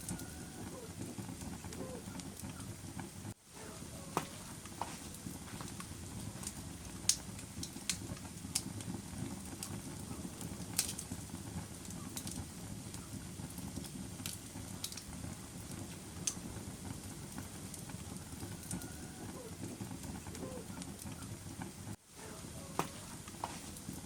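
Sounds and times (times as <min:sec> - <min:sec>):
fire crackles and pops: 0:00.0 - 0:24.0
low rumble of flames: 0:00.0 - 0:24.0.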